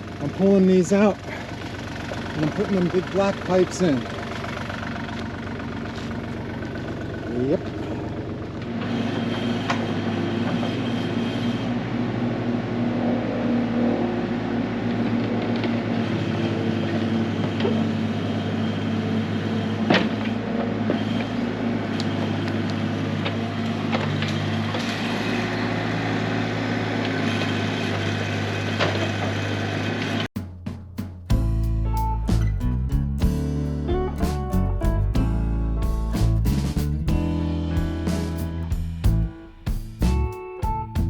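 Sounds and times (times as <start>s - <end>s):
heavy equipment engine humming: 0.0s - 30.3s.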